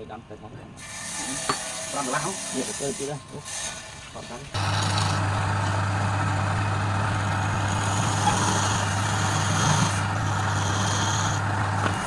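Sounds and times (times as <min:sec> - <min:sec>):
lathe motor hum: 0:04.6 - 0:12.0
tool scraping spinning wood: 0:04.6 - 0:12.0.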